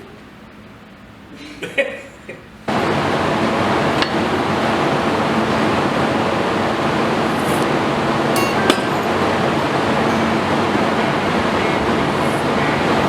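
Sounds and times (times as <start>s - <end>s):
loud steady rushing noise: 2.7s - 13.0s.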